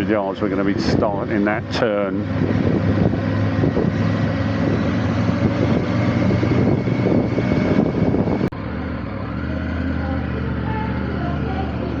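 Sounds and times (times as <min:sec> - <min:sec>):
motorcycle engine running: 0:00.0 - 0:12.0
wind rush on microphone: 0:00.4 - 0:08.5.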